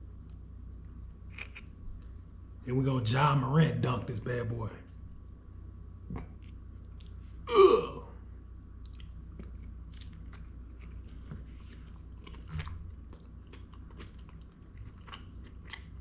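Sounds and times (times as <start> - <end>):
steady low hum: 0.0 - 16.0
person chewing crunchy food: 0.8 - 2.3, 8.8 - 16.0.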